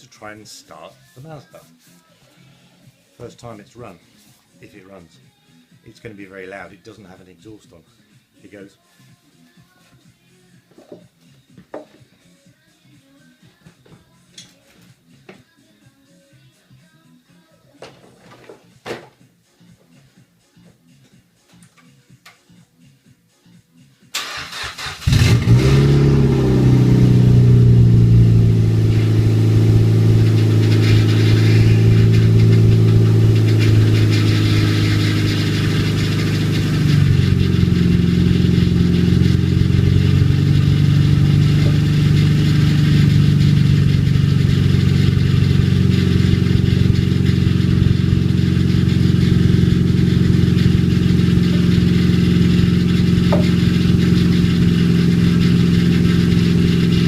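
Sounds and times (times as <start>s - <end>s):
car engine starting and idling: 24.1s - 57.0s.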